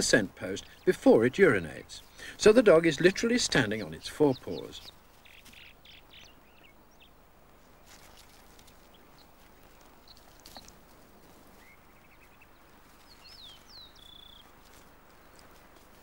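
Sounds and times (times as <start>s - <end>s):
bird chirps: 0.1s - 7.2s, 7.9s - 10.7s, 11.5s - 15.6s.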